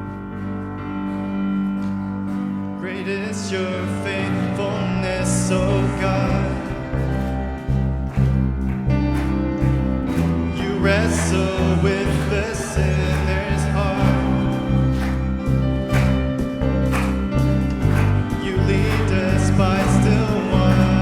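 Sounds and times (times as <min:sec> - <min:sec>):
praise band playing: 0:00.0 - 0:21.0
person singing: 0:02.8 - 0:08.1, 0:10.2 - 0:21.0.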